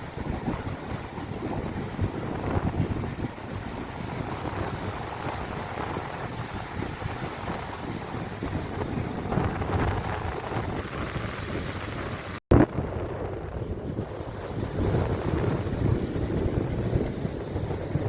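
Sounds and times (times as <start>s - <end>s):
sea waves washing: 0.0s - 18.0s
wind buffeting microphone: 0.0s - 18.0s.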